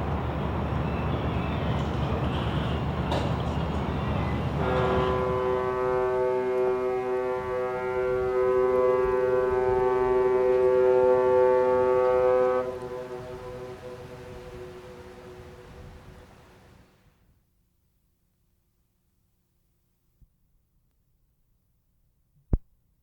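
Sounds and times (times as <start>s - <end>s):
ship's horn blast: 3.9s - 16.9s.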